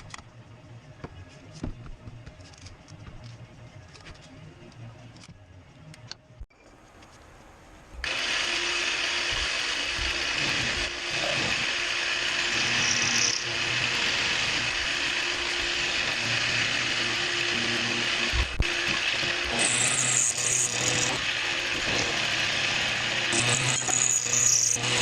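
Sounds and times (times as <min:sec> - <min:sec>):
power tool running: 0:08.0 - 0:25.0.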